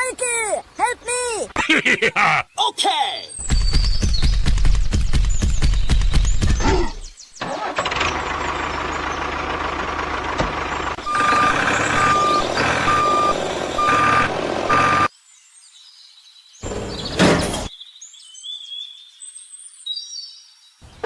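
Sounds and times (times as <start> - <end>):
truck engine running: 7.4 - 15.1
reversing alarm beeping: 11.0 - 15.1.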